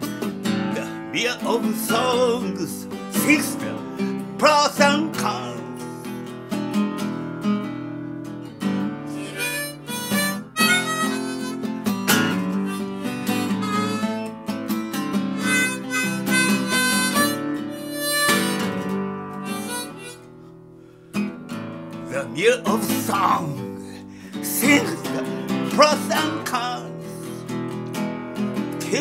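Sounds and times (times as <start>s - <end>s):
strummed acoustic guitar: 0.0s - 29.0s
harmonica melody: 9.0s - 21.2s, 24.4s - 27.6s.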